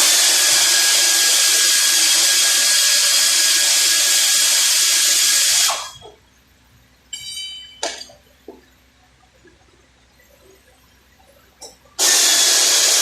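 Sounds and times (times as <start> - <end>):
power tool running: 0.0 - 5.9, 12.0 - 13.0.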